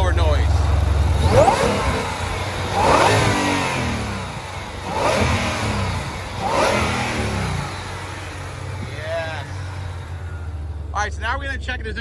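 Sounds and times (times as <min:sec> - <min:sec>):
car engine revving: 0:00.0 - 0:12.0
supercharger whine: 0:00.0 - 0:12.0.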